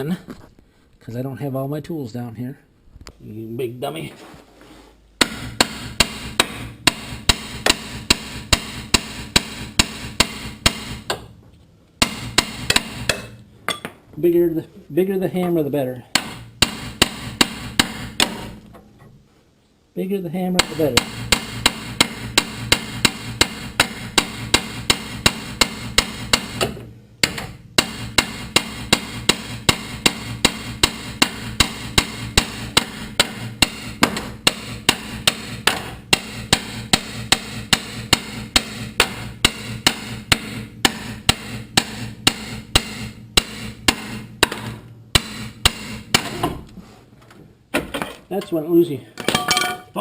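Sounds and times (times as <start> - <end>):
hammer striking steel: 5.2 - 11.3, 12.0 - 13.9, 16.0 - 18.6, 20.6 - 46.6.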